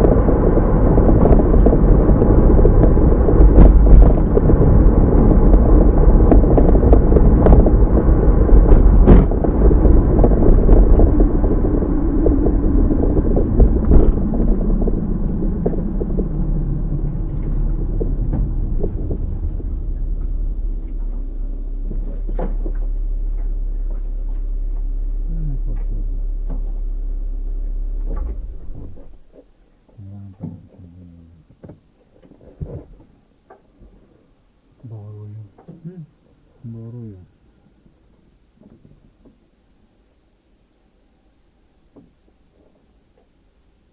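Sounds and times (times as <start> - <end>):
car engine and road rumble: 0.0 - 29.7.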